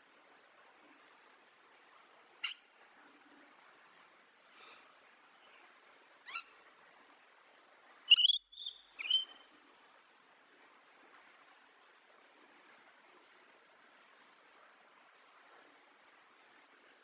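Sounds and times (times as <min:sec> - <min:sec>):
faint steady hiss: 0:00.0 - 0:17.0
bird calling: 0:08.1 - 0:09.4.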